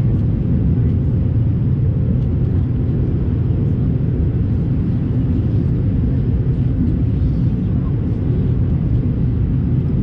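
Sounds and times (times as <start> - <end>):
aircraft cabin engine rumble: 0.0 - 10.0.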